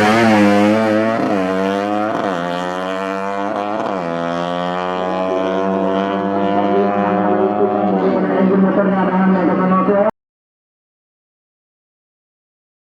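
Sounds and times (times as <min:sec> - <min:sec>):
racing motorcycle engine revving: 0:00.0 - 0:10.1.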